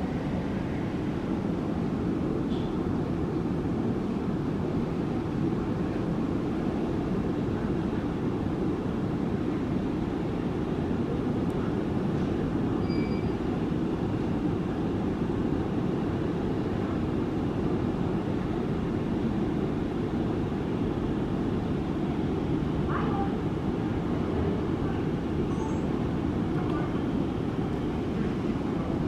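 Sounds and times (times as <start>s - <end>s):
low mechanical rumble: 0.0s - 29.0s
faint short tone: 12.8s - 13.4s
faint squeak: 12.8s - 13.4s, 25.5s - 25.9s.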